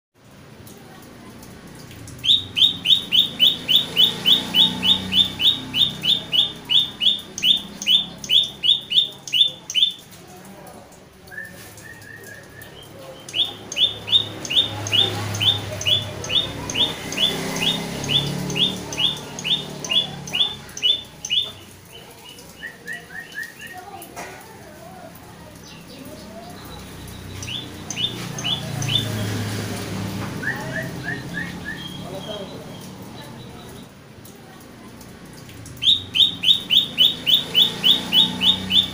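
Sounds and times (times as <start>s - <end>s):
bird calling high notes: 2.2s - 10.1s, 11.9s - 21.8s, 26.5s - 29.5s, 35.7s - 38.9s.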